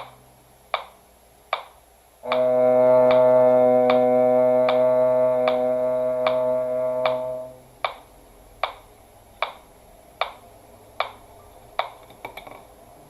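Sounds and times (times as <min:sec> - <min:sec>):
metronome ticking: 0:00.0 - 0:10.4, 0:11.0 - 0:11.2
cello held note: 0:02.2 - 0:07.7.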